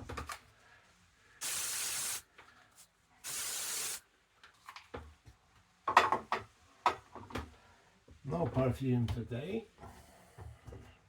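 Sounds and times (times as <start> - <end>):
spray bottle spritzes: 1.4 - 2.3, 3.2 - 4.0.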